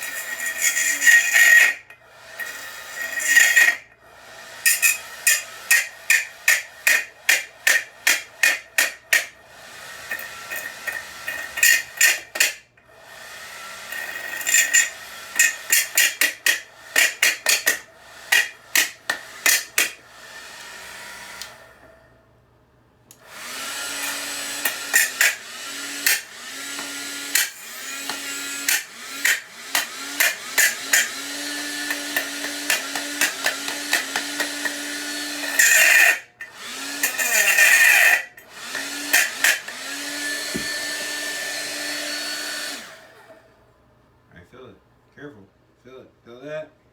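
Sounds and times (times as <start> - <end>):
hair dryer blowing: 18.1 - 21.9, 23.2 - 35.7, 38.5 - 43.4.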